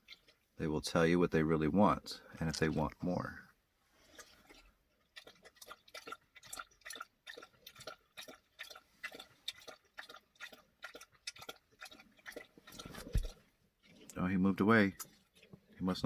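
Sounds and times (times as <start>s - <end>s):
dog licking and chewing: 4.1s - 14.2s, 14.9s - 16.0s.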